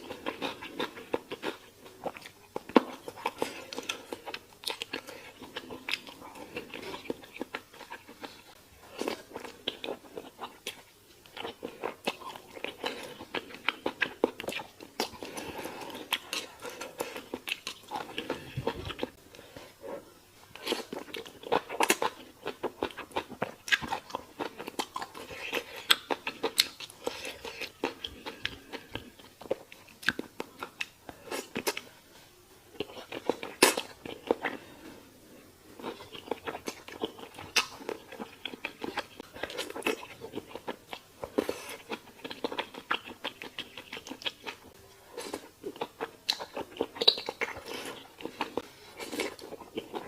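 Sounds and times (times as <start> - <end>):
person chewing crunchy food: 0.0 - 31.9, 32.7 - 50.0.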